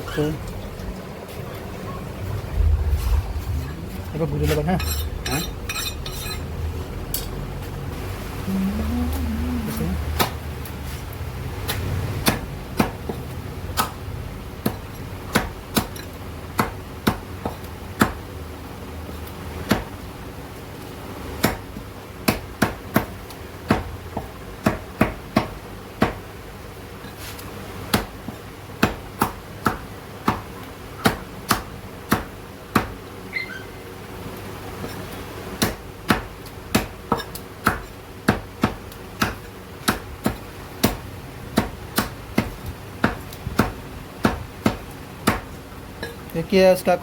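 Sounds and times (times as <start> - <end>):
meat cleaver chopping chicken: 35.6 - 45.5.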